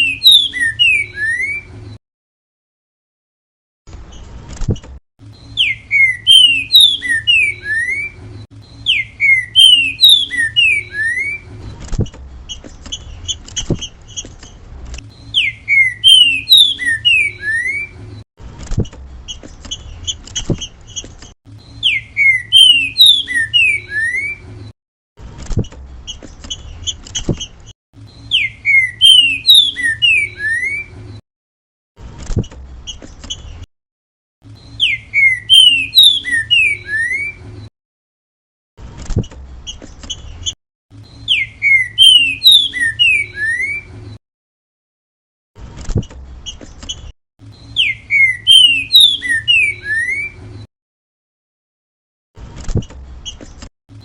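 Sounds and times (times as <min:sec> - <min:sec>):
bird singing whistled phrases: 0:00.0 - 0:01.7, 0:05.4 - 0:11.5, 0:15.1 - 0:18.0, 0:21.6 - 0:24.4, 0:28.1 - 0:30.9, 0:34.6 - 0:37.4, 0:41.1 - 0:43.9, 0:47.6 - 0:50.4.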